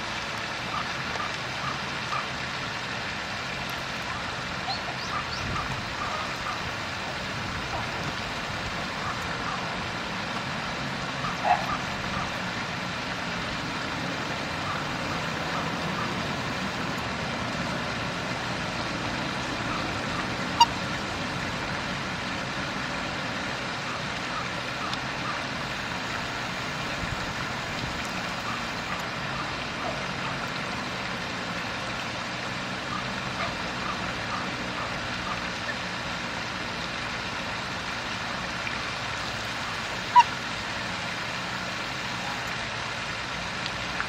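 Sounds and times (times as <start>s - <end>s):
steady rushing background noise: 12.3s - 22.4s
birds calling: 14.5s - 21.9s.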